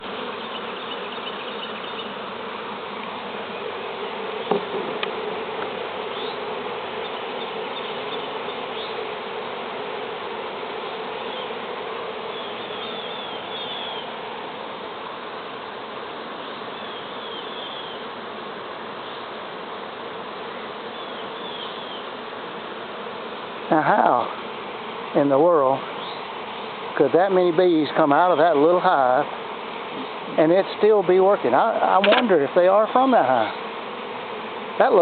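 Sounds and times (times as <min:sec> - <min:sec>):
bee swarm buzzing: 0:00.0 - 0:35.0
sharp knock: 0:04.5 - 0:05.1.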